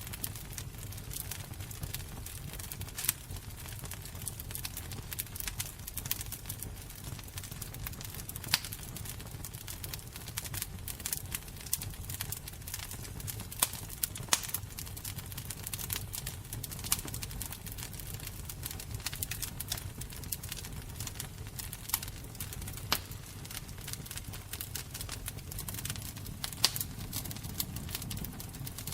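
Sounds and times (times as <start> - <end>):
fire crackling: 0.0 - 28.9.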